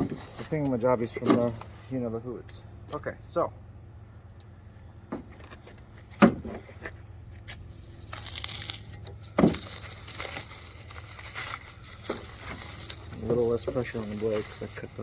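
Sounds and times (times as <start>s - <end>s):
plastic wrap crinkling: 7.8s - 15.0s.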